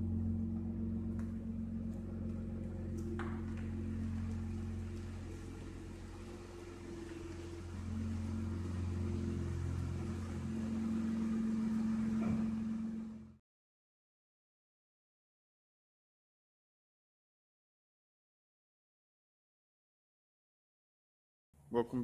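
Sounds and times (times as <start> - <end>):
car engine humming at low revs: 0.0 - 13.4.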